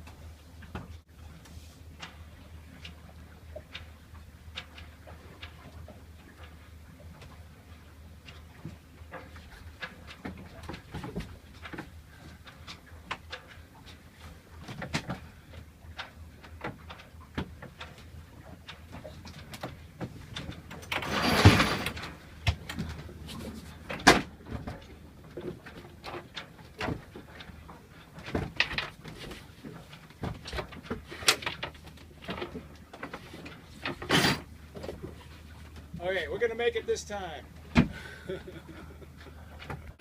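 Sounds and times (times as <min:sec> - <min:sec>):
low steady hum: 0:00.0 - 0:40.0
sailboat knocks and creaks: 0:00.0 - 0:40.0.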